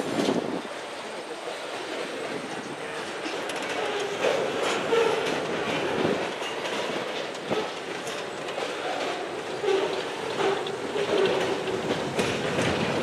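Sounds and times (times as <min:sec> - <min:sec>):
freight cars rolling: 0:00.0 - 0:13.0
wheel clacks over rail joints: 0:02.8 - 0:13.0.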